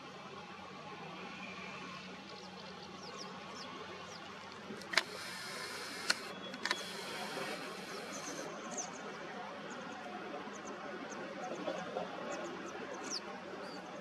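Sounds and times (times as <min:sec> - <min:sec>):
steady background hiss: 0:00.0 - 0:09.8
sharp clicks: 0:04.8 - 0:08.5.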